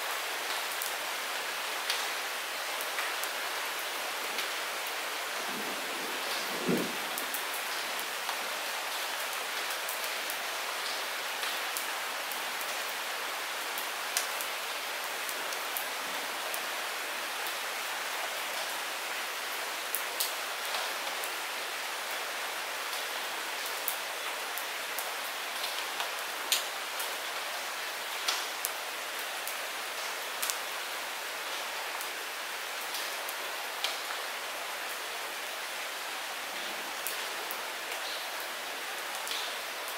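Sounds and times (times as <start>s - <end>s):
light rain hiss: 0.0s - 39.9s
raindrops ticking close: 22.9s - 27.2s, 37.0s - 39.9s.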